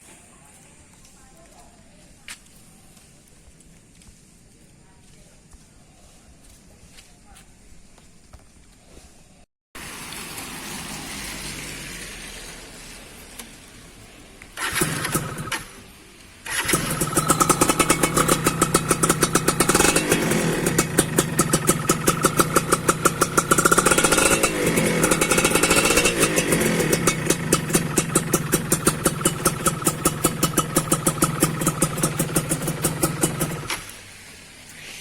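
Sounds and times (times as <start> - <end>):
two-stroke engine running: 14.6 - 15.8, 16.4 - 33.9.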